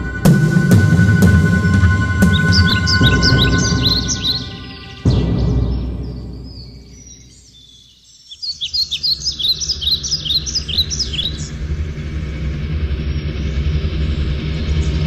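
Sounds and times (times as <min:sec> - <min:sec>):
background music: 0:00.0 - 0:07.5
birds chirping: 0:00.0 - 0:15.0
low outdoor rumble: 0:10.1 - 0:15.0.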